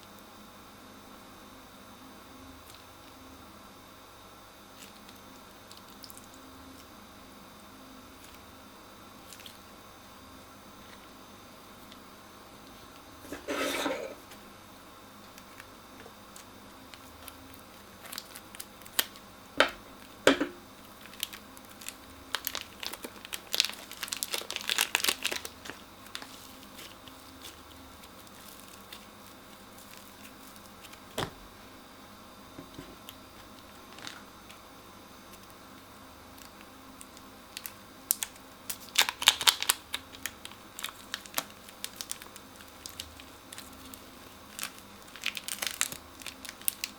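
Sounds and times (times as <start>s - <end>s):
crunchy slime crackling: 4.7s - 6.9s, 9.2s - 9.6s, 15.3s - 31.4s, 33.0s - 34.6s, 36.2s - 46.9s.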